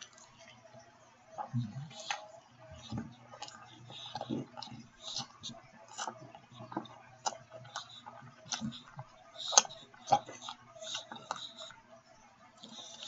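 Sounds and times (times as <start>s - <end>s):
wet chewing mouth smacks: 1.4s - 11.8s.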